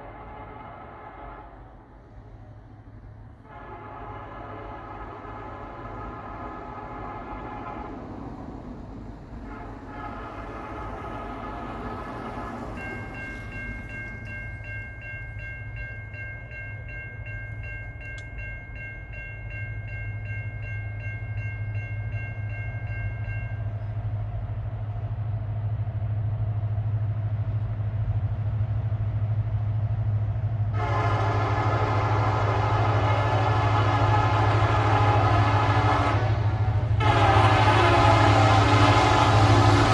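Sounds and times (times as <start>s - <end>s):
locomotive horn blast: 0.0s - 2.2s, 3.3s - 8.4s, 9.4s - 12.8s, 30.7s - 39.9s
locomotive low rumble: 0.0s - 39.9s
crossing bell dinging: 10.8s - 24.0s.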